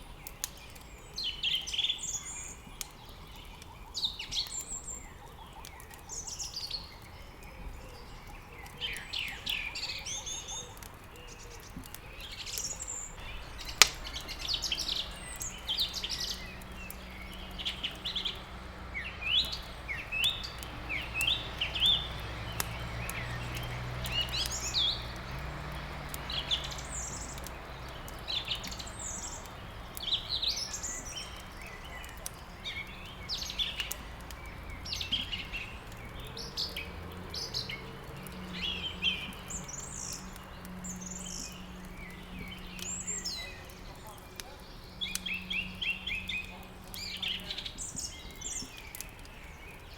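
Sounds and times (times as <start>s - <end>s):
small birds chirping: 0.0s - 49.9s
wood crackling in fireplace: 0.0s - 49.9s.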